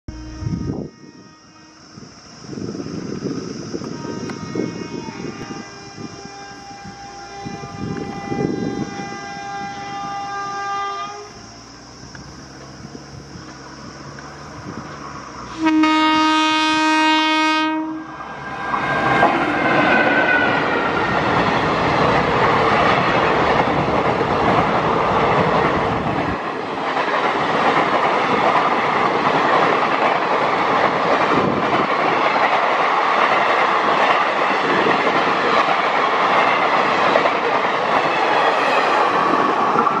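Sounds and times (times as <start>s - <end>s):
train horn blast: 0.1s - 2.0s, 3.9s - 11.4s, 15.5s - 18.2s, 38.0s - 40.0s
train wheels rushing on rail: 0.1s - 40.0s.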